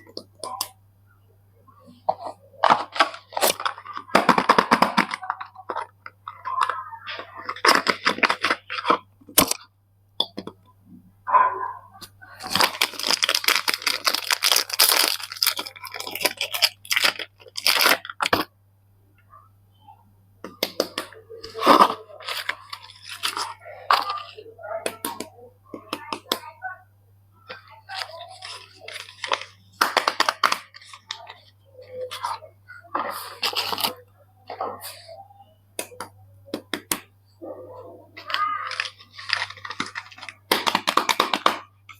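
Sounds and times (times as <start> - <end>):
packaging tearing and crinkling: 7.1 - 9.6, 12.4 - 18.4, 20.7 - 24.3, 27.9 - 32.3, 33.2 - 34.0, 38.2 - 41.7.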